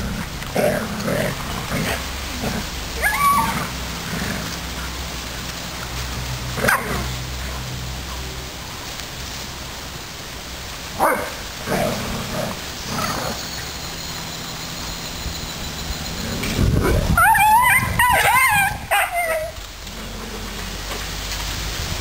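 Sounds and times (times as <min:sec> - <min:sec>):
dogs barking and yipping: 0:00.0 - 0:03.8, 0:06.5 - 0:07.8, 0:10.9 - 0:19.6
steady background hiss: 0:00.0 - 0:22.0.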